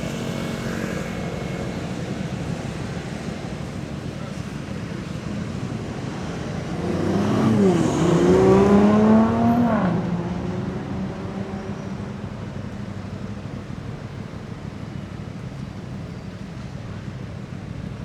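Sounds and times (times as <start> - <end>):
traffic noise: 0.0 - 18.0
vehicle driving past: 6.8 - 11.8.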